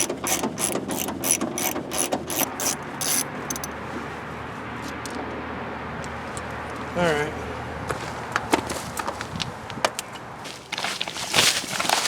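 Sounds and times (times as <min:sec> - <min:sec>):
hand ratchet clicking: 0:00.0 - 0:03.7.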